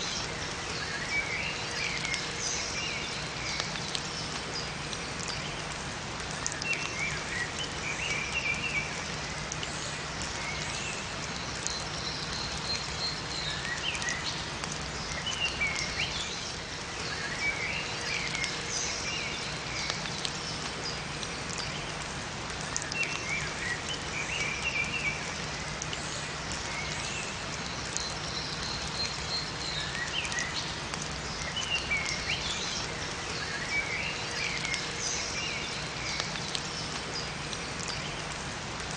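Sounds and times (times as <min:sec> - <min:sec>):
rain falling in forest: 0:00.0 - 0:38.9
small birds chirping: 0:06.3 - 0:22.0, 0:22.6 - 0:38.4.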